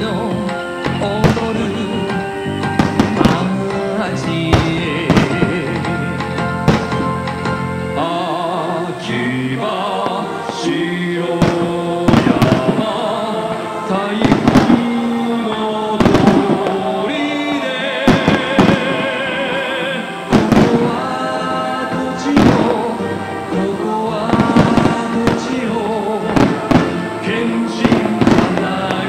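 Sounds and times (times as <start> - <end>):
fireworks bursting: 0.0 - 29.0
music with held notes: 0.0 - 29.0.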